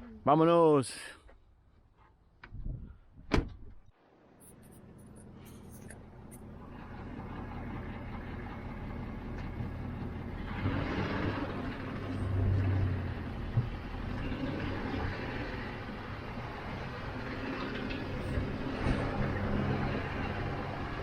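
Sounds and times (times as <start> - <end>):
road noise: 3.9 - 21.0
truck engine running: 4.4 - 21.0.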